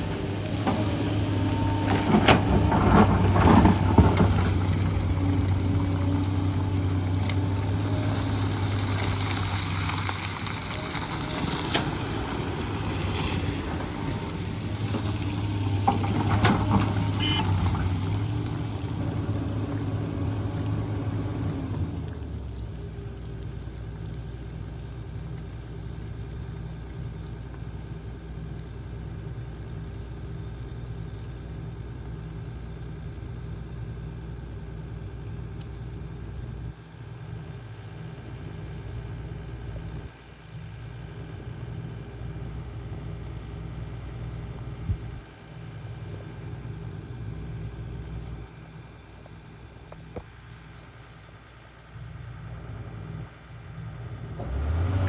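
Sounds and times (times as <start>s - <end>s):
excavator diesel engine running: 0.0s - 55.0s
bucket scraping and knocking ground: 0.1s - 18.9s.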